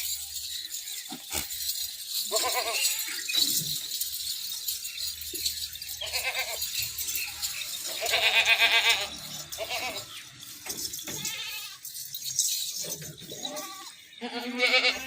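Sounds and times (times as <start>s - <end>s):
goats bleating: 2.3s - 3.3s, 6.0s - 6.8s, 7.9s - 10.0s, 11.1s - 11.9s, 13.3s - 15.0s.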